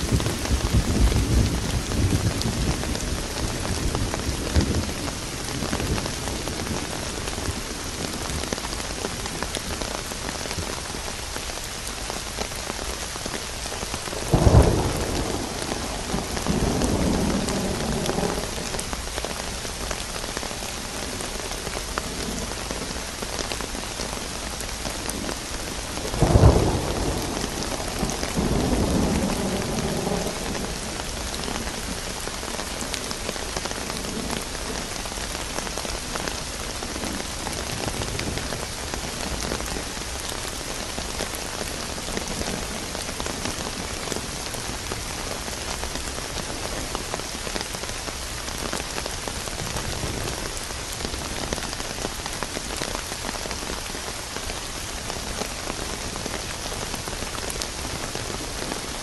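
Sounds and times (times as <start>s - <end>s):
thunder clap and rumble: 0.0s - 9.4s, 14.0s - 19.8s, 25.0s - 35.3s, 49.2s - 51.7s
steady rain: 0.0s - 59.0s.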